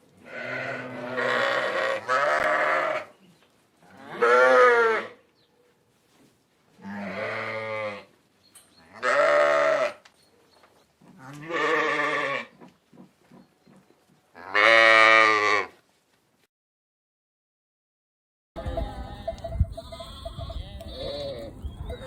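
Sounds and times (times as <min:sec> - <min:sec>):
sheep bleating: 0:00.2 - 0:03.1, 0:03.9 - 0:05.1, 0:06.8 - 0:08.1, 0:08.9 - 0:10.0, 0:11.2 - 0:12.5, 0:14.4 - 0:15.7, 0:18.6 - 0:21.6.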